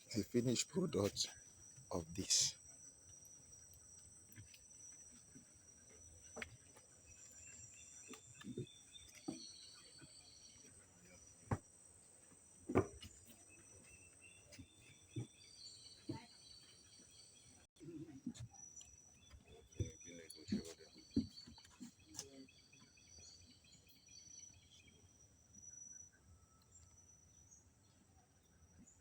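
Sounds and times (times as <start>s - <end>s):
insects chirring: 0.0s - 17.7s.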